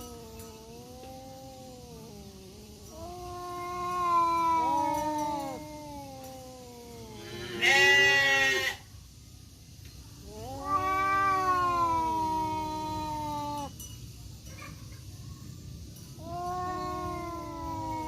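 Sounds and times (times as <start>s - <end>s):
cats yowling: 0.0s - 8.8s, 10.2s - 13.8s, 16.2s - 18.0s.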